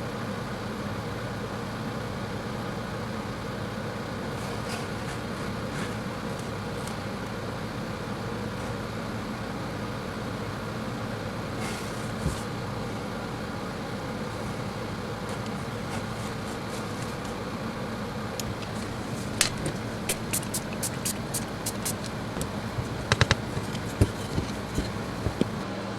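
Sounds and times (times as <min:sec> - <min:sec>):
steady mechanical hum: 0:00.0 - 0:25.9.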